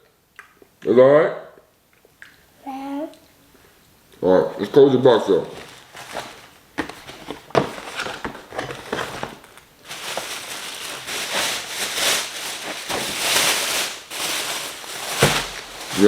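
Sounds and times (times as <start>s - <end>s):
packaging crinkling: 5.4s - 16.0s.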